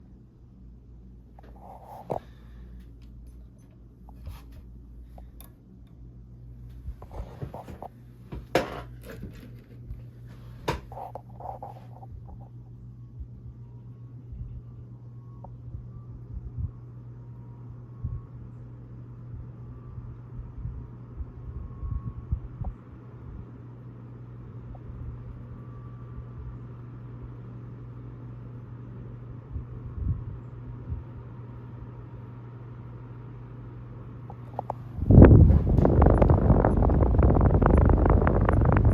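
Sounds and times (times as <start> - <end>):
electric fan humming: 0.0 - 38.9
fan clicks and knocks: 6.7 - 11.2, 34.3 - 38.9
low bumps: 34.6 - 38.9.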